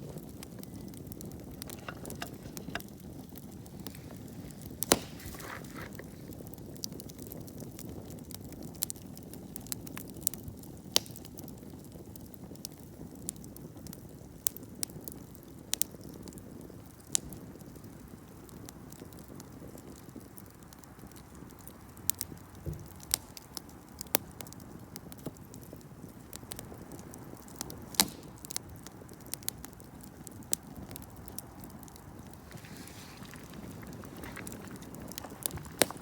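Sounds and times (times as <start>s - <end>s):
campfire crackling and popping: 0.0s - 36.0s.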